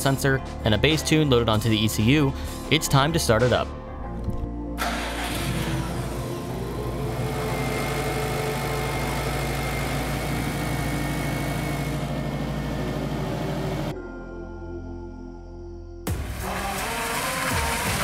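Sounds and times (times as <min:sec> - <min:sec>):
car engine starting and idling: 0:04.3 - 0:13.9, 0:16.1 - 0:18.0.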